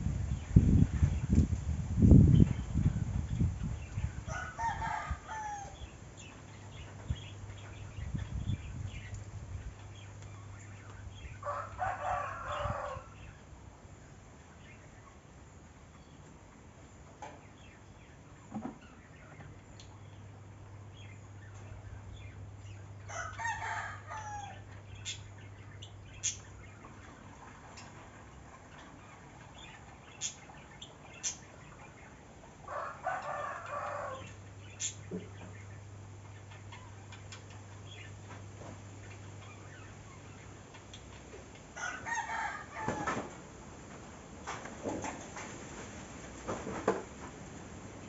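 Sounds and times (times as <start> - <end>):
rooster crowing: 4.3 - 5.9, 11.4 - 13.2, 23.1 - 24.6, 32.7 - 34.3, 41.8 - 43.3.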